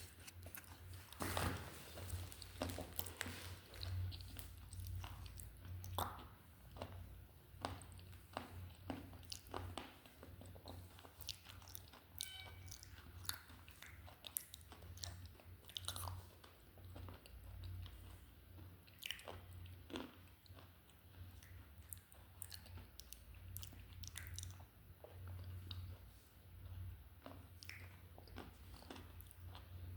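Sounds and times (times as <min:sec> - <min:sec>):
pencil crunching when chewed: 0:00.0 - 0:01.2, 0:07.9 - 0:18.2.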